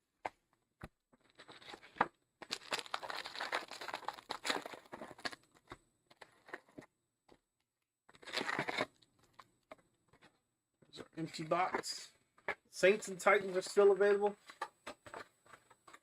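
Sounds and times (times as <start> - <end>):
plastic wrappers crinkling and tearing: 1.4 - 5.4, 8.1 - 8.9.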